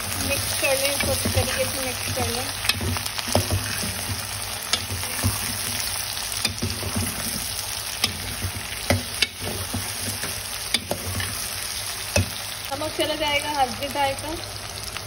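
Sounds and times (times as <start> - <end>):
vegetables sizzling in hot oil: 0.0 - 15.0
spoon clicking and scraping pan: 0.2 - 11.4, 12.0 - 12.4.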